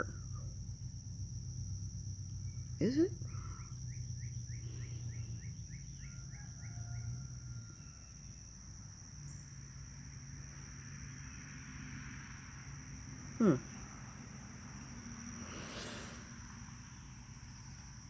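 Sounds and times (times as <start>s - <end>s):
low steady hum: 0.0s - 6.0s
insect buzzing and trilling: 0.0s - 18.0s.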